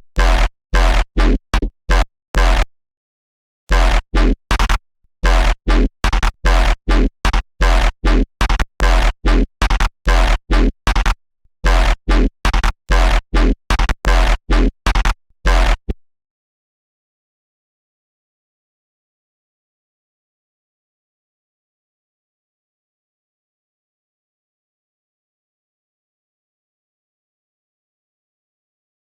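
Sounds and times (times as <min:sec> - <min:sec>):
gritty synth notes with bass: 0:00.1 - 0:02.7, 0:03.7 - 0:16.0.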